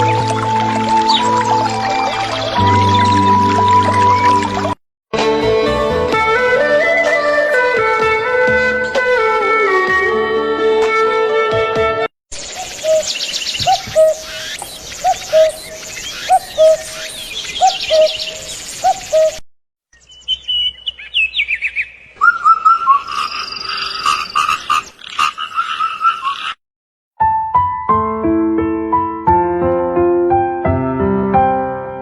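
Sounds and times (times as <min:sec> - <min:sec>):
flute-like music: 0:00.0 - 0:12.1
bird chirps and trills: 0:12.4 - 0:19.4, 0:20.0 - 0:26.6
low hooked bird call: 0:12.4 - 0:19.4.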